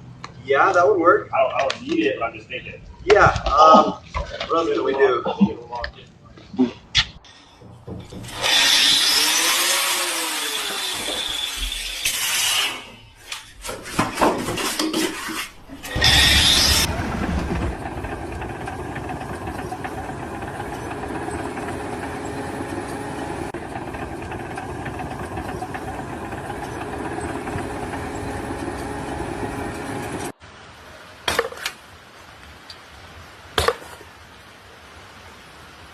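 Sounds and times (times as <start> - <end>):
motor-driven machine whining: 8.0 - 13.4, 15.7 - 30.3.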